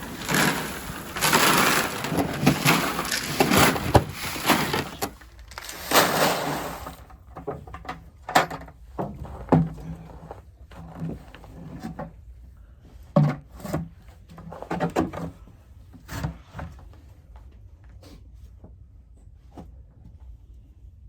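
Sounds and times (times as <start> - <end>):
icy snow crunching: 0.0 - 6.8.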